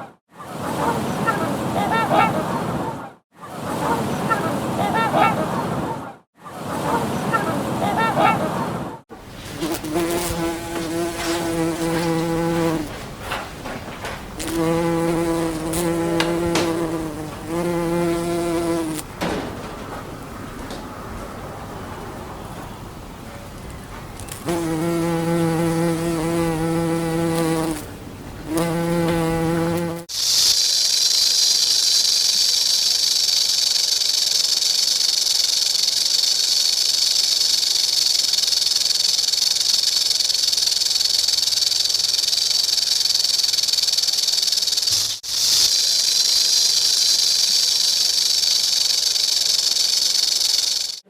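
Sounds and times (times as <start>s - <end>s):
low insect wing buzz: 9.5s - 12.9s, 14.4s - 19.1s, 24.2s - 30.1s
high-pitched insect drone: 30.2s - 51.0s.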